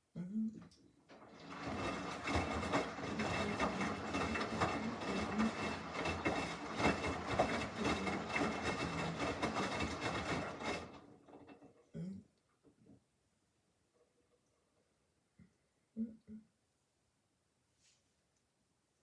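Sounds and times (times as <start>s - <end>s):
wet laundry tumbling: 1.1s - 11.6s
washing machine motor running: 1.1s - 11.7s
small knocks and rattles: 1.1s - 11.9s.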